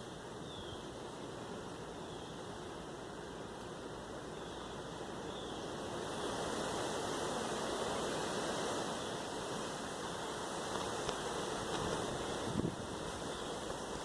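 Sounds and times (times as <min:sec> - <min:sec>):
strong wind blowing: 0:11.2 - 0:14.0.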